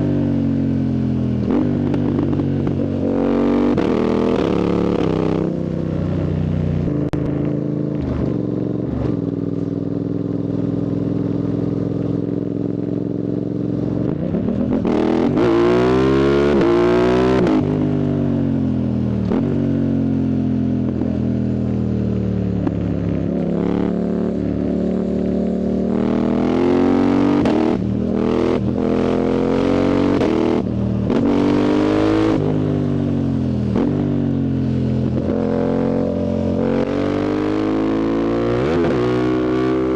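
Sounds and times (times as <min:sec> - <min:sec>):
motorcycle engine revving: 0:00.0 - 0:21.1, 0:22.5 - 0:39.9.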